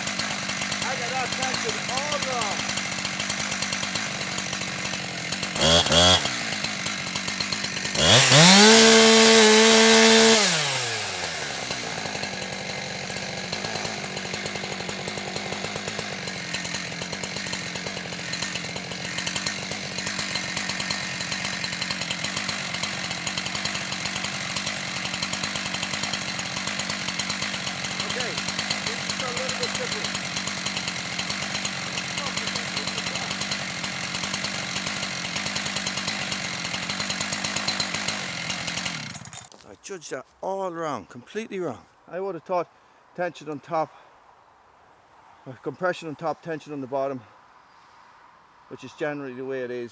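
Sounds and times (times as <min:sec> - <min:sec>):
chainsaw idling and revving: 0:00.0 - 0:39.7.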